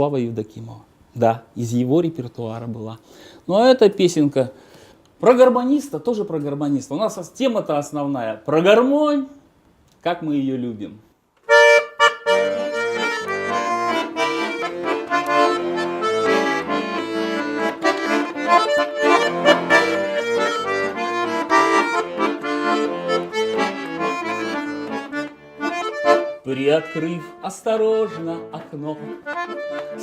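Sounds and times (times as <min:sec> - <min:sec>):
accordion folk melody: 0:11.4 - 0:30.0.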